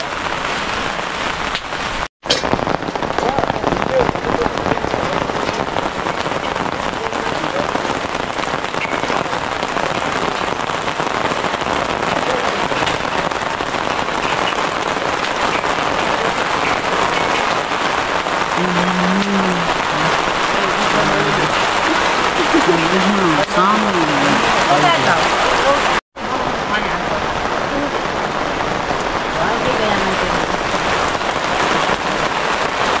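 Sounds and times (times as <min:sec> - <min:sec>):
rain on a tarpaulin: 0:00.0 - 0:33.0
person speaking: 0:18.6 - 0:28.0.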